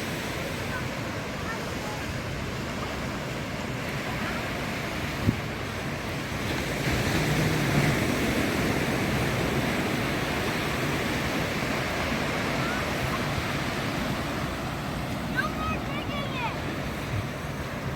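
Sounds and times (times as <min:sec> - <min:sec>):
ocean surf on sandy beach: 0:00.0 - 0:17.9.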